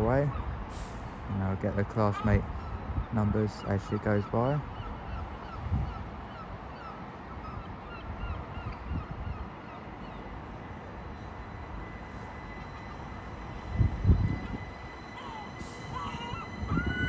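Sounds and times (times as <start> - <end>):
train wheels rumbling: 10.2 - 17.0.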